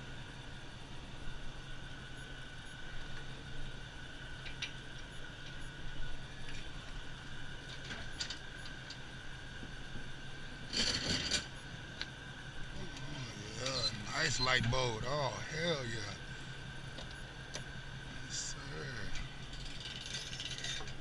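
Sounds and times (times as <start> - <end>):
vehicle engine idling: 11.6 - 21.0.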